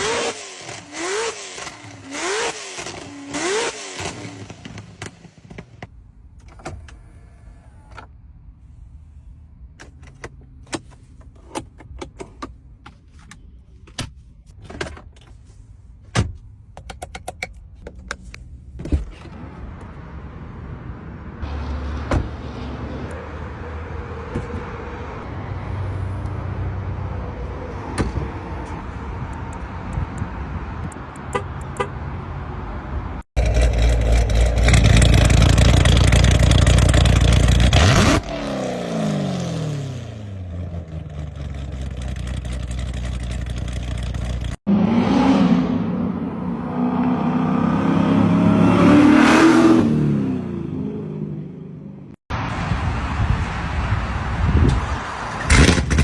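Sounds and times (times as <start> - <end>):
car engine revving: 0.0 - 5.0, 33.4 - 52.2.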